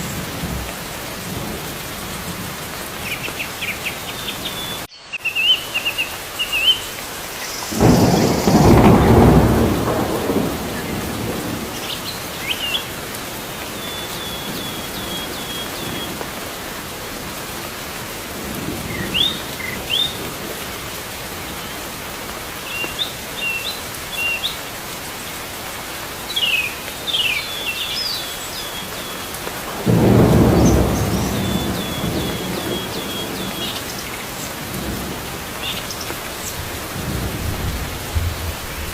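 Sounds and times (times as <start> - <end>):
steady rain: 0.0 - 38.9
thunder rolling: 7.7 - 11.8, 29.8 - 35.5, 36.2 - 38.9
small birds chirping: 26.3 - 29.5, 30.1 - 34.7.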